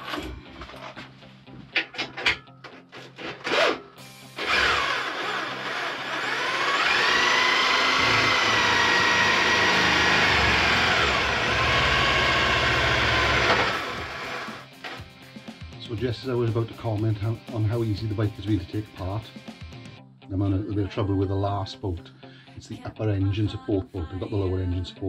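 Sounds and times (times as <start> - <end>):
cordless drill motor whine: 4.4 - 14.6.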